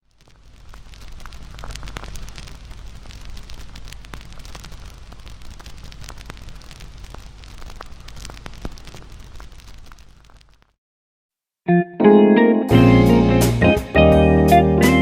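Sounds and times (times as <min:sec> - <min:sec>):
wood fire crackling: 0:00.0 - 0:10.8.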